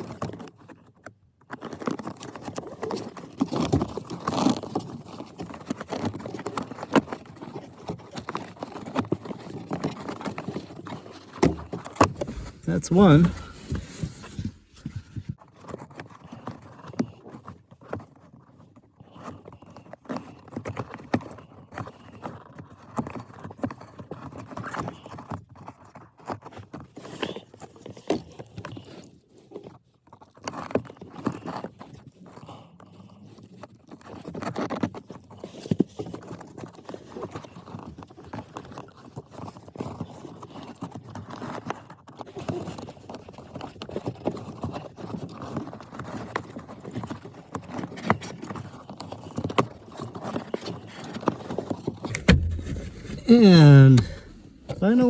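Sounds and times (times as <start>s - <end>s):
plastic clicking and scraping: 52.1s - 55.0s.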